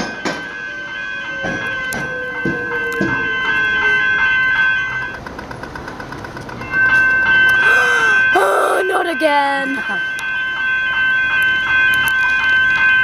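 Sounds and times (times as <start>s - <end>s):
train wheels knocking over crossing: 0.0s - 0.6s, 1.3s - 3.5s, 4.9s - 7.7s
steady high ringing tone: 0.0s - 13.0s.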